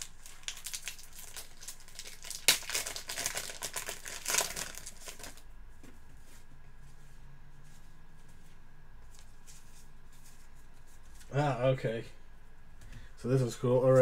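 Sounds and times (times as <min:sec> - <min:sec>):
card packaging crinkling: 0:00.0 - 0:05.4
faint low hum: 0:00.0 - 0:14.0.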